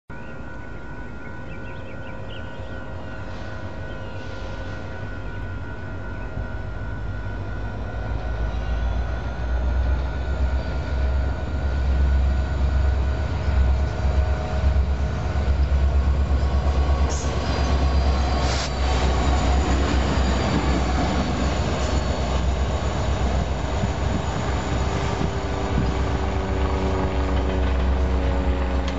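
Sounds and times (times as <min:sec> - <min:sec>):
diesel locomotive engine rumble: 0:00.2 - 0:28.9
wheels squealing on rail: 0:01.7 - 0:07.1, 0:12.0 - 0:26.6.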